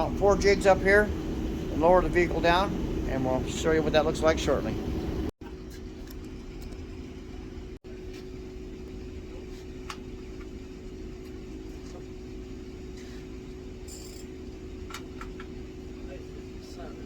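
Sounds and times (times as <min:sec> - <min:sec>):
low rumble: 0:00.0 - 0:05.3
machine hum: 0:00.0 - 0:17.0.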